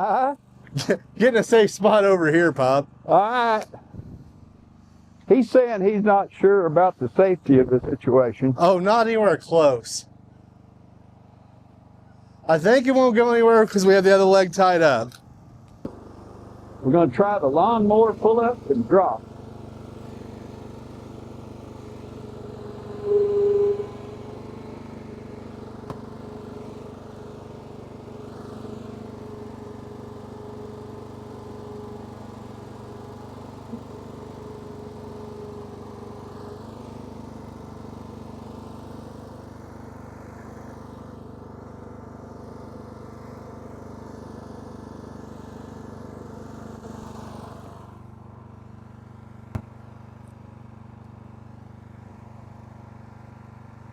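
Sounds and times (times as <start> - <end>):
lawn mower engine running: 0.0 - 53.9
brief louder tone: 22.8 - 24.4.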